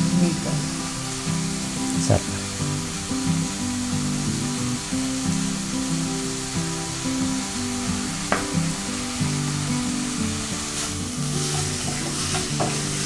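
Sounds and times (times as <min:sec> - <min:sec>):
background music: 0:00.0 - 0:13.0
food sizzling in a frying pan: 0:00.0 - 0:13.0
spatula knocking on a pan: 0:08.3 - 0:08.5, 0:11.5 - 0:13.0
spatula scraping a pan: 0:10.6 - 0:13.0.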